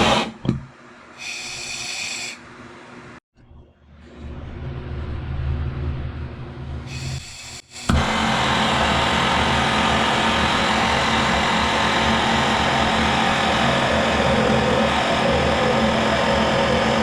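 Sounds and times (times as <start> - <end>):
gas torch flame hissing: 0.0 - 0.4, 1.2 - 2.5, 6.9 - 17.0.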